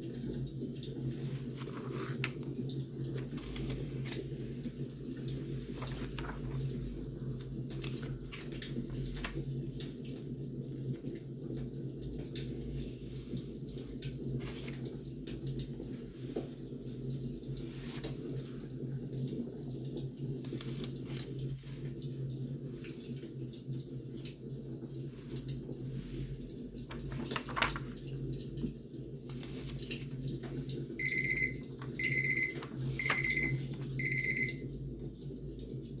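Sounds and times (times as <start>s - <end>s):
timer alarm beeping: 31.0s - 34.7s.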